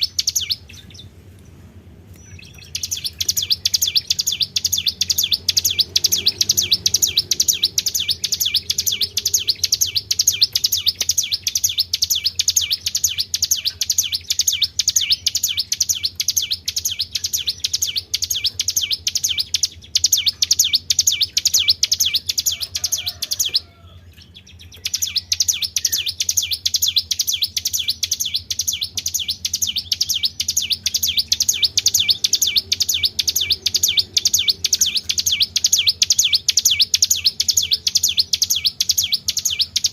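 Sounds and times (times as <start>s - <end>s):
songbird high chirps: 0.0s - 39.9s.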